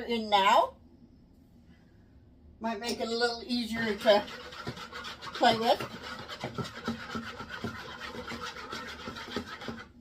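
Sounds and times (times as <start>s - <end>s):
utensil scraping a bowl: 3.0s - 10.0s.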